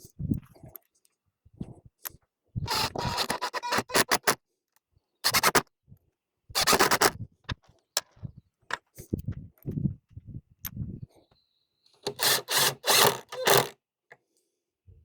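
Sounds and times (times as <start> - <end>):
screws being driven scraping: 2.7 - 4.4, 5.2 - 5.6, 6.6 - 7.1, 12.0 - 13.8.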